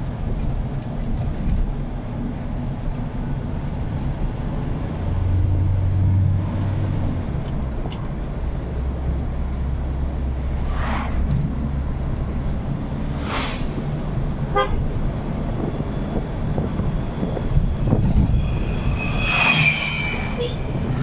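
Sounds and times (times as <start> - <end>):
motorcycle engine and road rumble: 0.0 - 21.0
short whooshes: 10.6 - 11.4, 13.1 - 14.1.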